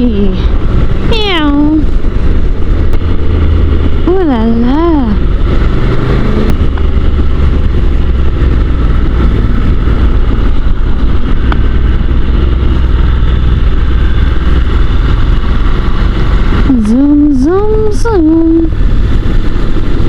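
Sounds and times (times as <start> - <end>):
motorcycle engine drone: 0.0 - 20.0
wind rush on microphone: 0.0 - 20.0.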